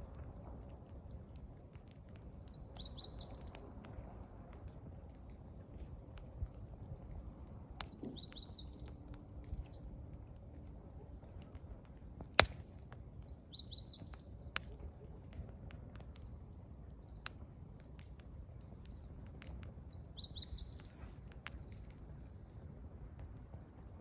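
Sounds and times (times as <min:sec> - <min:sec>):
wood fire crackling and popping: 0:00.0 - 0:24.0
songbird twittering: 0:02.1 - 0:03.8, 0:07.7 - 0:09.9, 0:13.1 - 0:14.7, 0:19.8 - 0:21.3.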